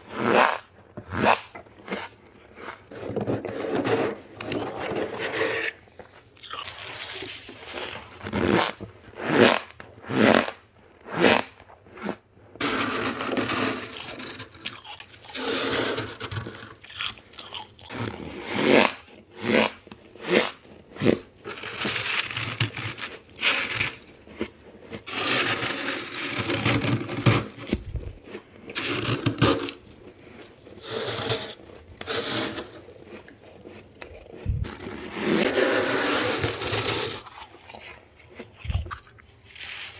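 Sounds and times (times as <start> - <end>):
frost being bitten and chewed: 6.3 - 8.8, 13.5 - 15.4, 16.5 - 25.1, 27.4 - 30.9, 31.5 - 35.5, 36.8 - 39.9.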